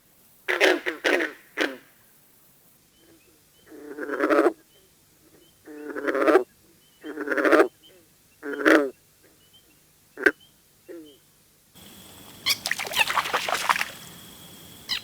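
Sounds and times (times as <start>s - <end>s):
frog calling: 3.0s - 15.0s
faint high chirps: 11.8s - 15.0s.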